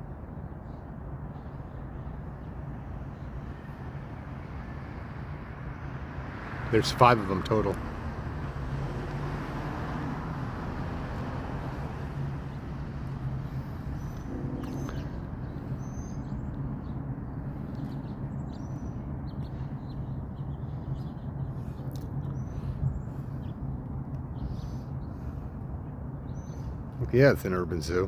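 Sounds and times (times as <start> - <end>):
vehicle engine hum: 0.0 - 28.0
high bird chirps: 13.9 - 17.0.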